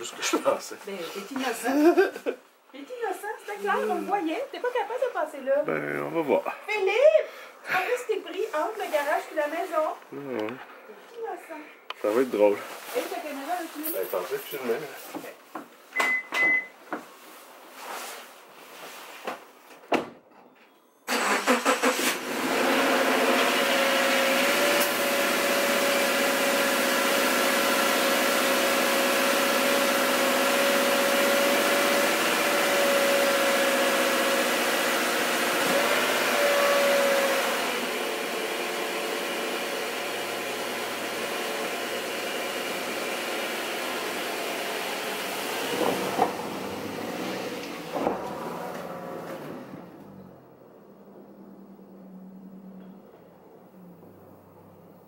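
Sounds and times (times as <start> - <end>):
car engine starting and running: 21.1 - 55.0
engine whine: 44.7 - 55.0.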